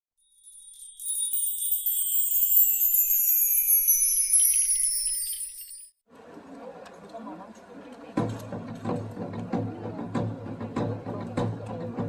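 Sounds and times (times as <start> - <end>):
shimmering chime gliding downward: 0.2 - 6.0.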